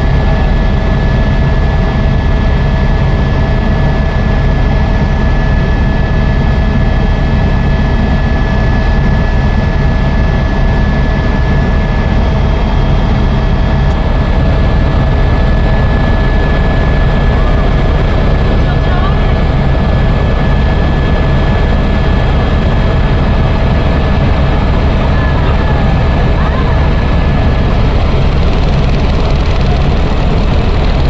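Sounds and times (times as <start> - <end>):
helicopter rotor and engine drone: 0.0 - 31.0
high whine: 13.8 - 31.0.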